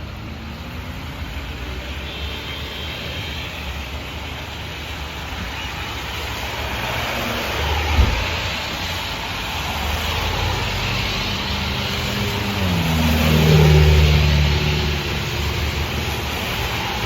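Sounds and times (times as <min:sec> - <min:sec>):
steady rushing noise: 0:14.4 - 0:17.0.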